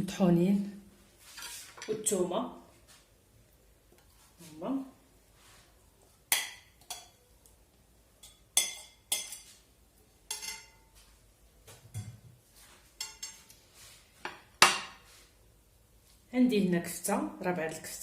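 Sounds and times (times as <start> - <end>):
utensils and dishes clinking: 8.2 - 9.6, 10.3 - 10.9, 13.0 - 13.5.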